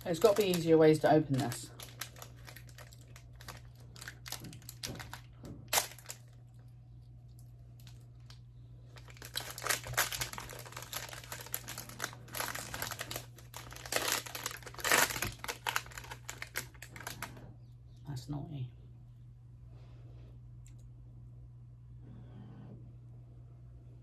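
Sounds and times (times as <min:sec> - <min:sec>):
food packaging crinkling: 0:00.0 - 0:06.7, 0:07.3 - 0:17.4.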